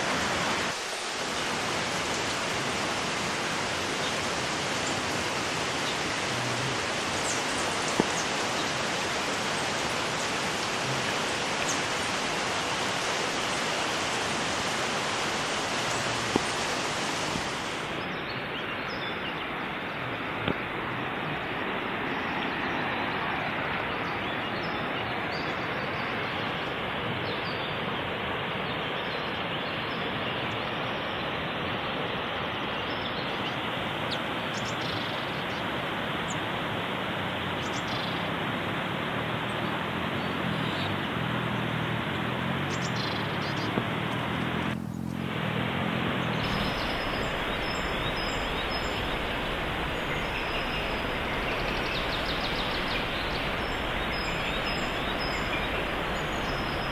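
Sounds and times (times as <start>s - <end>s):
river water rushing over rocks: 0.0s - 56.9s
faint bird chirps: 46.2s - 56.9s.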